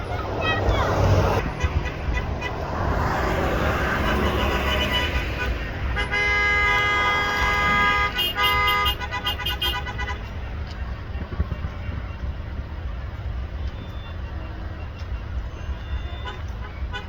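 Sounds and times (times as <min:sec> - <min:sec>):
car horn blast: 0:01.4 - 0:10.3
short car horn toots: 0:03.6 - 0:10.2.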